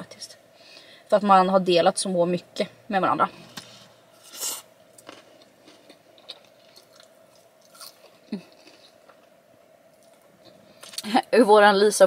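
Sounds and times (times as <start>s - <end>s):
chewing with wet mouth clicks: 4.9s - 9.2s.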